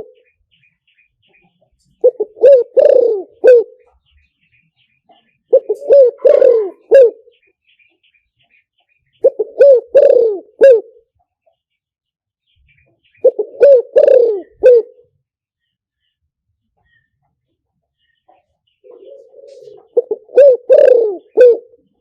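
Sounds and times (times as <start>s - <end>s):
dove cooing: 0.0s - 0.2s, 2.0s - 4.0s, 5.1s - 7.4s, 9.2s - 11.1s, 13.1s - 15.1s, 18.8s - 22.0s.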